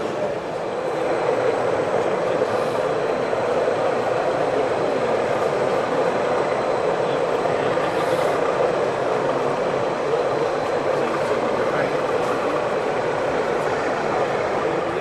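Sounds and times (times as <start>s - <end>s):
busy hall background hum: 0.0s - 15.0s
model train running: 0.0s - 15.0s.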